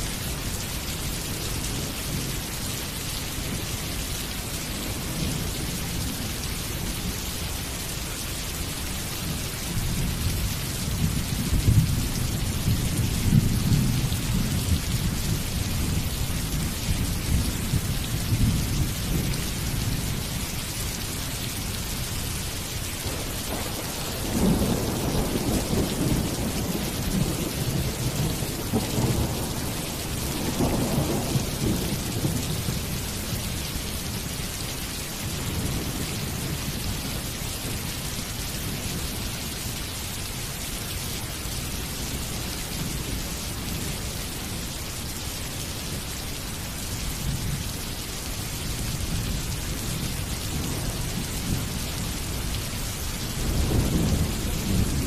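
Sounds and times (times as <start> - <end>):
steady rain: 0.0 - 55.0
thunder rumbling: 23.0 - 32.9, 53.3 - 55.0.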